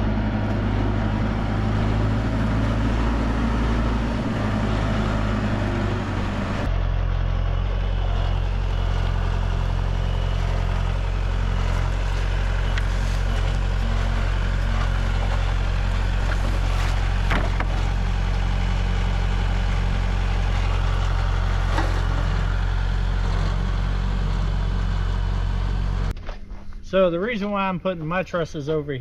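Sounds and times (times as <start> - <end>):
tractor engine running: 0.0 - 26.2.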